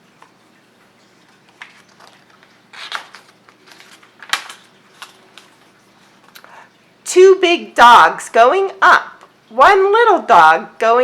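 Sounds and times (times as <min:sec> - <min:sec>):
book pages rustling: 0:01.2 - 0:06.6.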